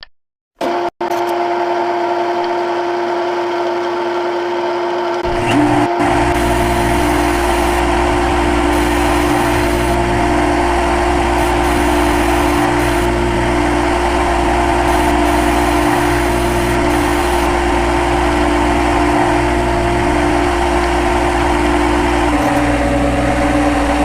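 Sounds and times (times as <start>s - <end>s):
cnc machine high hum: 0.6s - 24.0s
deep low rumble: 5.2s - 24.0s.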